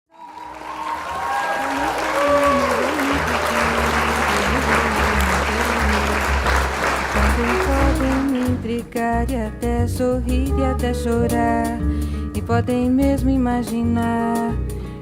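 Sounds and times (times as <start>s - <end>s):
audience applauding: 0.1s - 8.6s
live band music: 0.7s - 15.0s
steady bass notes: 1.8s - 15.0s.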